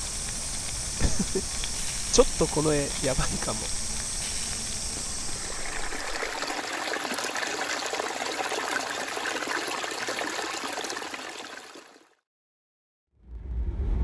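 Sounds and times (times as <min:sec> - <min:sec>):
stream trickling over rocks: 0:05.0 - 0:12.1.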